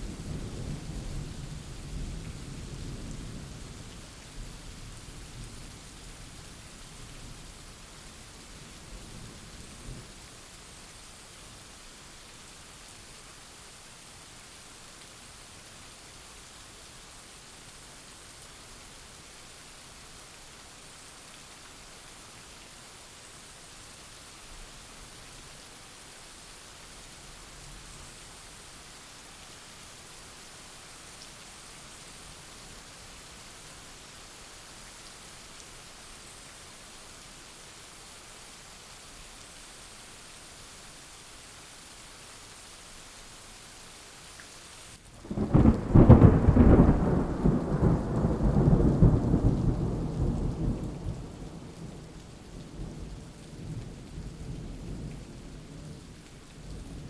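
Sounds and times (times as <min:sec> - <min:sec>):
steady rain: 0:00.0 - 0:57.0
loud thunderclap rumbling: 0:45.2 - 0:51.8.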